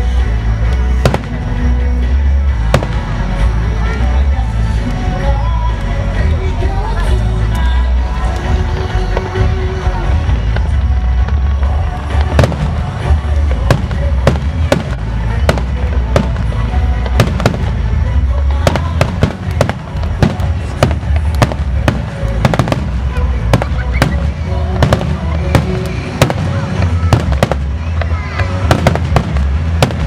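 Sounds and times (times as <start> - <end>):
fireworks bangs: 1.0 - 1.8, 2.5 - 3.6, 8.4 - 30.0.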